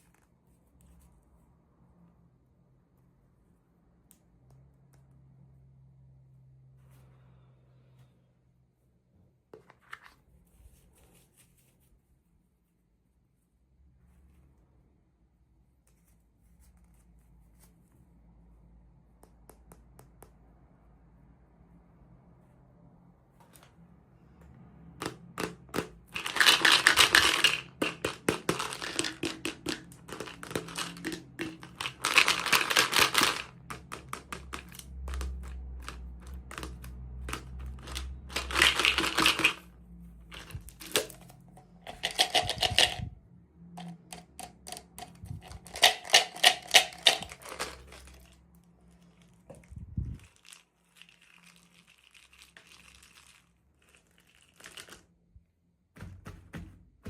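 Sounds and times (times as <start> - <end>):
plastic packaging crinkling: 26.2 - 33.6, 37.7 - 39.6, 45.4 - 48.4, 50.2 - 55.1.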